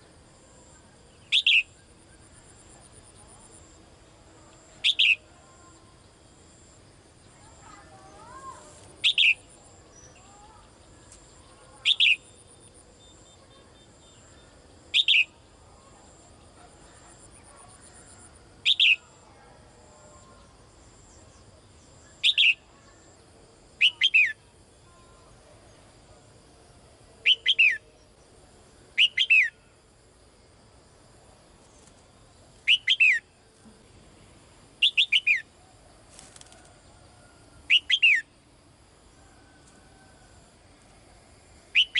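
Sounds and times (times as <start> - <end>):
songbird call notes: 0.0 - 3.3, 4.5 - 15.5, 16.4 - 19.3, 20.1 - 23.2, 23.8 - 25.8, 27.2 - 28.3, 28.9 - 29.8, 31.8 - 33.4, 34.8 - 35.7, 36.4 - 38.4, 41.7 - 41.9.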